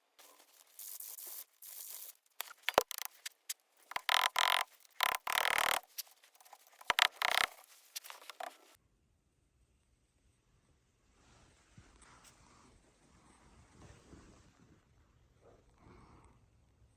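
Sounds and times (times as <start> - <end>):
scraping and rubbing strokes: 0.2 - 8.8
sharp clicks: 1.0 - 8.7.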